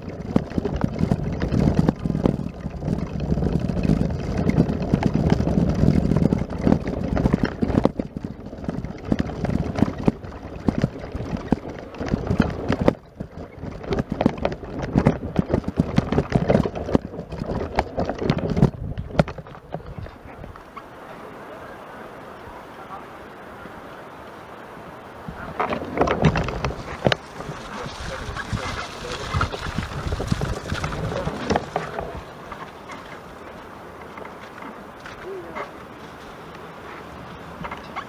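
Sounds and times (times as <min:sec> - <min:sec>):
microphone rumble: 0:00.0 - 0:36.0
footsteps crunching in snow: 0:26.5 - 0:37.3.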